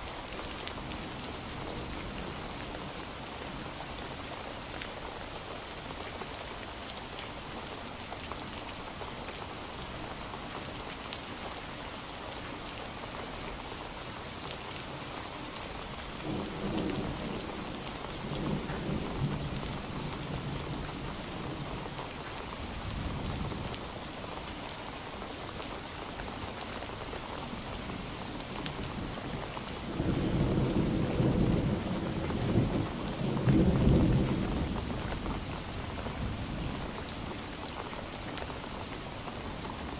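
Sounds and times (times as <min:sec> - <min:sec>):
steady rain falling: 0:00.0 - 0:39.9
thunder rumbling: 0:29.8 - 0:36.8.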